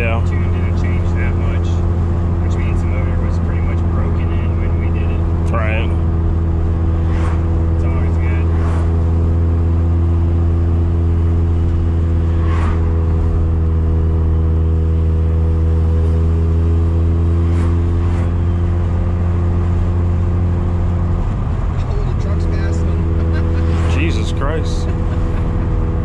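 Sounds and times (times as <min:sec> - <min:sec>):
rotary engine droning: 0:00.0 - 0:26.0.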